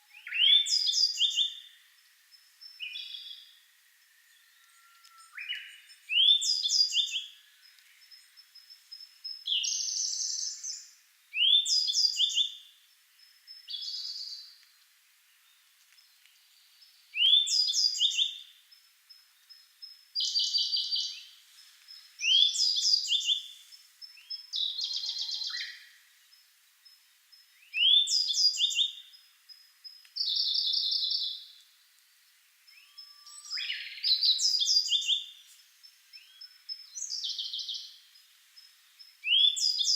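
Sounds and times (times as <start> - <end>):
whistled bird song: 0.0 - 8.4, 9.3 - 12.7, 13.5 - 14.6, 16.8 - 18.5, 20.2 - 21.4, 22.0 - 26.0, 27.6 - 29.2, 32.7 - 35.4, 36.1 - 38.0, 39.2 - 39.9.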